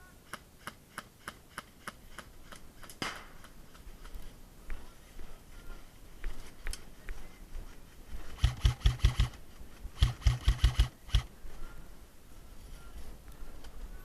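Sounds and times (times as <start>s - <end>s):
airsoft gun shots: 3.0s - 3.5s, 8.4s - 9.4s, 10.0s - 11.3s.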